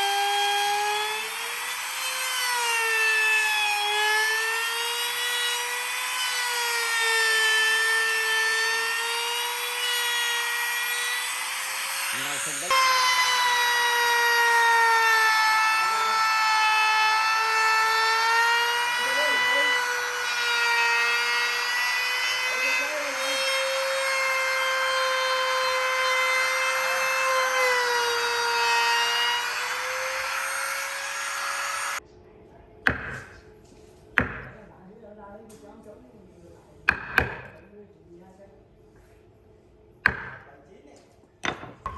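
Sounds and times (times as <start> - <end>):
power tool motor whine: 0.0 - 32.0.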